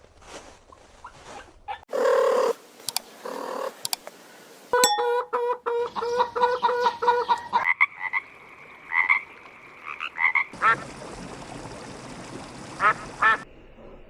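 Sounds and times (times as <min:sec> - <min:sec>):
higher-pitched frog calls: 0:01.9 - 0:04.0
frogs croaking: 0:01.9 - 0:13.4.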